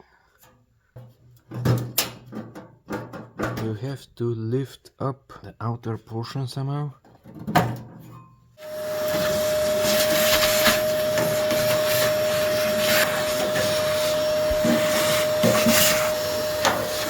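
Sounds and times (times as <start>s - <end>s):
vacuum cleaner whine: 8.6s - 17.0s.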